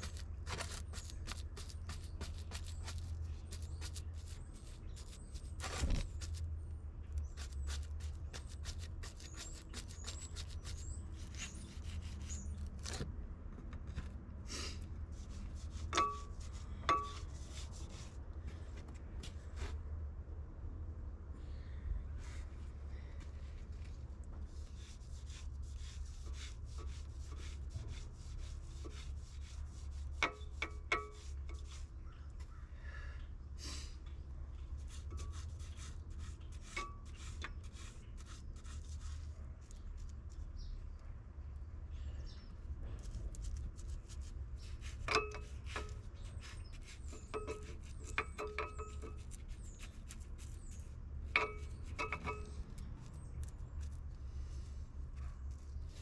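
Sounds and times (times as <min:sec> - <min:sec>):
scraping and rubbing: 0:00.0 - 0:06.5, 0:07.3 - 0:13.1, 0:15.1 - 0:18.2, 0:24.5 - 0:31.9, 0:34.8 - 0:40.4, 0:42.9 - 0:54.0.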